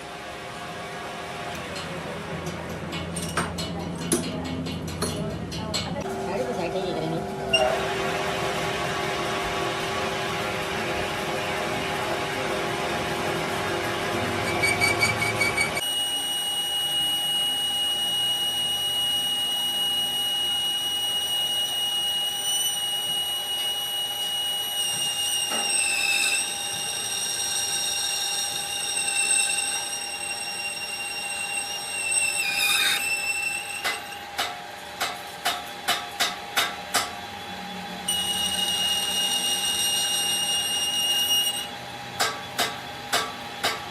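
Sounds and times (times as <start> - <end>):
workshop machinery running: 0.0 - 43.9
high-pitched machine whine: 6.1 - 34.4, 37.2 - 42.2.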